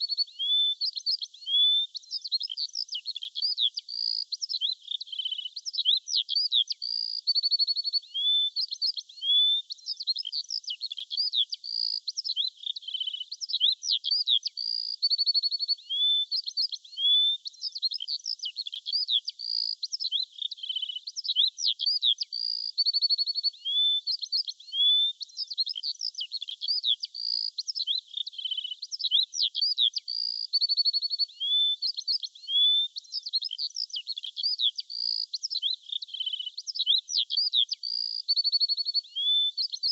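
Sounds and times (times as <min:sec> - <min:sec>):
birdsong chorus: 0:00.0 - 0:15.0, 0:23.4 - 0:39.9.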